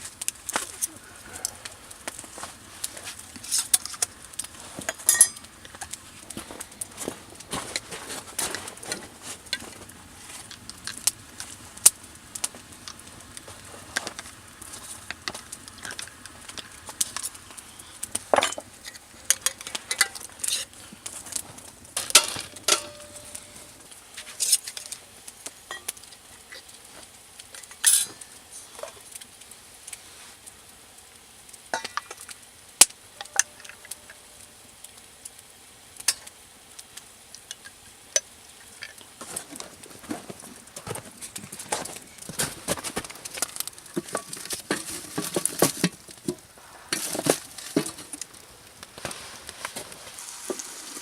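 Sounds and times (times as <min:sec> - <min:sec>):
metal cookware clinking: 0:05.0 - 0:05.5, 0:22.0 - 0:23.6, 0:27.8 - 0:28.2.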